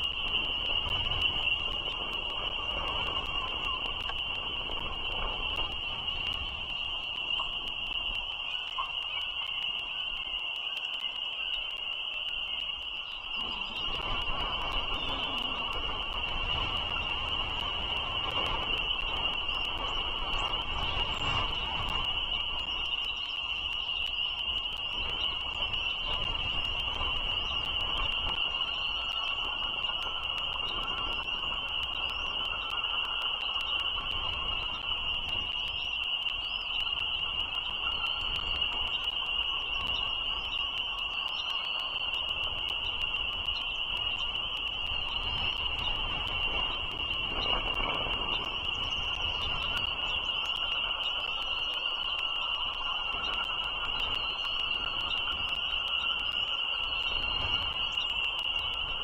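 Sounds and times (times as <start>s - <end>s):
frog chorus trilling: 0.0s - 59.0s
birds chirping: 6.2s - 59.0s.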